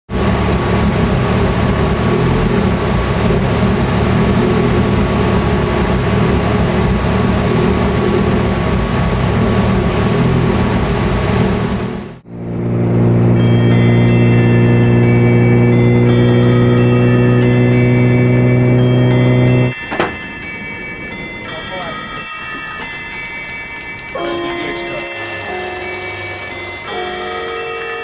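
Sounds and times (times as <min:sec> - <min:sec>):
car engine running: 0:00.1 - 0:21.9
thin steady whine: 0:00.2 - 0:22.5.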